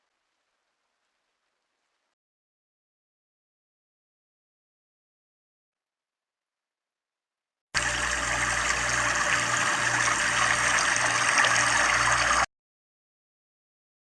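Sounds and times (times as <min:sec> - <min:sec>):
falling splashing water: 0:07.8 - 0:12.5.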